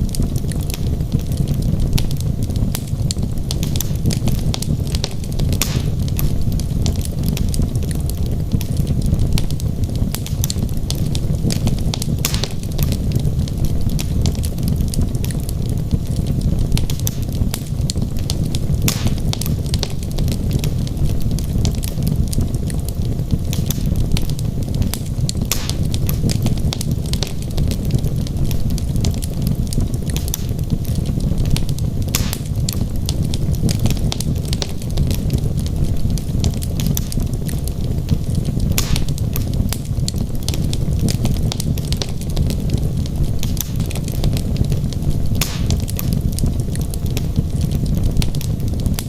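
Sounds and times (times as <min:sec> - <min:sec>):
fire crackles and pops: 0:00.0 - 0:49.0
low rumble of flame: 0:00.0 - 0:49.0.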